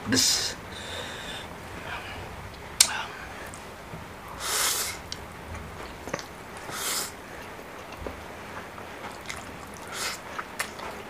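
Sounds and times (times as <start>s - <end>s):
sharp sucking intakes of air: 4.3s - 5.1s, 6.6s - 7.2s, 9.8s - 10.3s
faint eating clicks: 7.4s - 11.0s.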